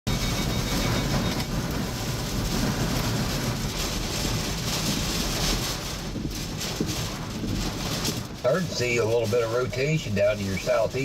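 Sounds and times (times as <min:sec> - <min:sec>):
strong wind blowing: 0:00.1 - 0:08.8.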